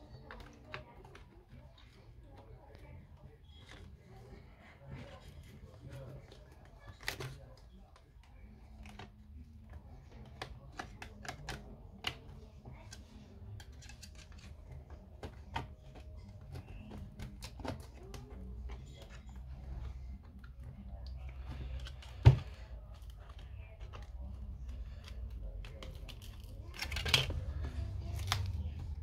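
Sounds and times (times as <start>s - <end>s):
tools and plastic parts clicking: 10.1s - 19.5s, 21.5s - 29.0s.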